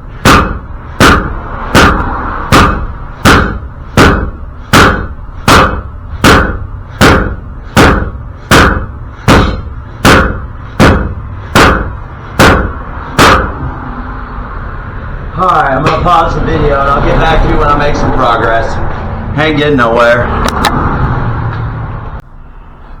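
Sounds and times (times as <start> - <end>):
hammer blows on metal: 0.0 - 13.8.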